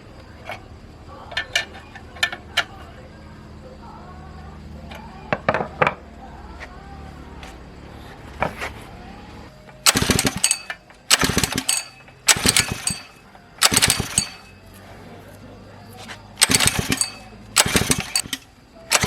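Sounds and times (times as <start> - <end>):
small engine being pull-started: 9.7 - 14.6, 16.4 - 19.0.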